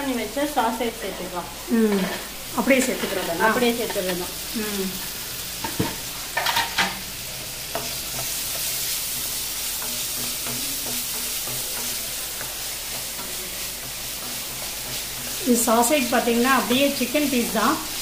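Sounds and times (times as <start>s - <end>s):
food sizzling in oil: 0.0s - 18.0s
knocks and scrapes against pan: 5.6s - 7.0s.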